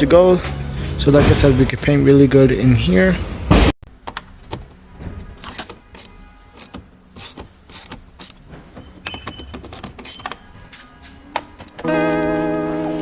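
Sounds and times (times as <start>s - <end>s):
hand tool clicks and clacks: 5.5s - 8.4s, 9.2s - 10.4s.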